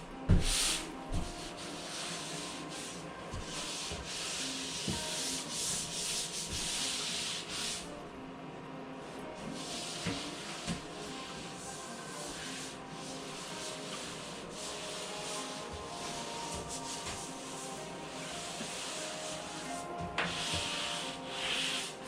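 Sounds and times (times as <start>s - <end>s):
sanding rasping hiss: 9.6s - 22.0s.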